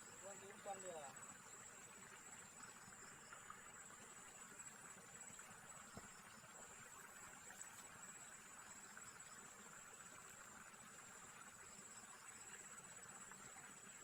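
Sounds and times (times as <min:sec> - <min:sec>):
insect chorus buzzing: 0:00.0 - 0:14.0.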